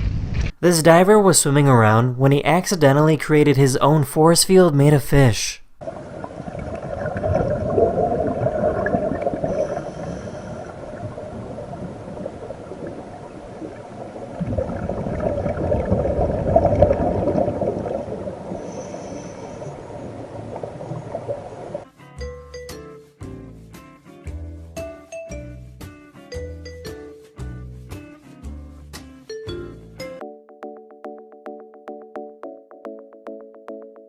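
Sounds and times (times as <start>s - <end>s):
diver exhaling bubbles underwater: 5.8s - 21.8s
faint hiss: 9.4s - 14.3s.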